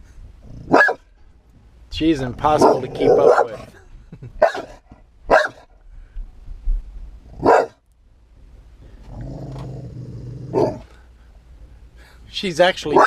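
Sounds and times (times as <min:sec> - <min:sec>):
low steady hum: 0:00.0 - 0:13.0
dog barking: 0:00.7 - 0:01.1, 0:02.6 - 0:03.7, 0:04.4 - 0:05.7, 0:07.4 - 0:07.8, 0:10.5 - 0:10.9.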